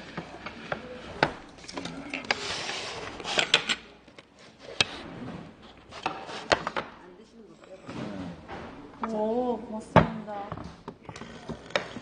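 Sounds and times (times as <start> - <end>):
tableware scraping: 0.0 - 9.2.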